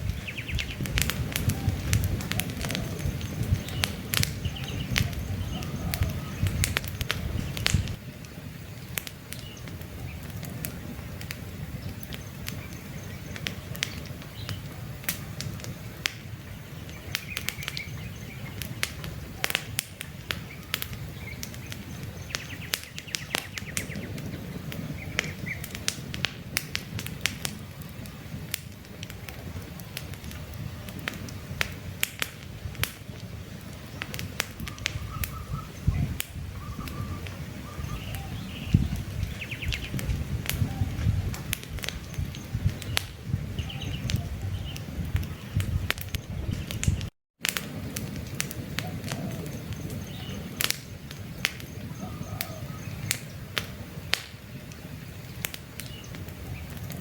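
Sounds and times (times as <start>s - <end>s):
campfire crackling and popping: 0.0s - 57.0s
low rumble of flames: 0.0s - 57.0s
faint bird chirps: 2.7s - 6.6s, 34.6s - 40.0s, 51.6s - 53.4s.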